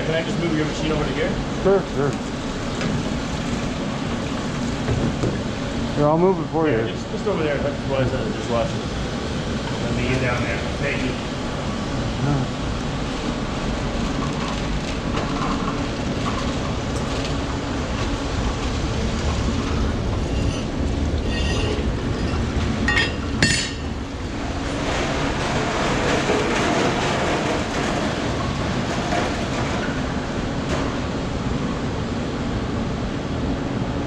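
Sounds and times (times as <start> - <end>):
mechanical rumble and rattle: 0.0 - 34.0.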